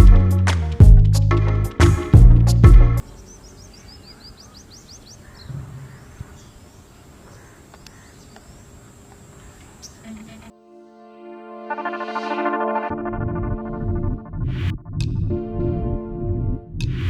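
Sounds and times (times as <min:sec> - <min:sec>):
small birds chirping: 0:03.0 - 0:10.5.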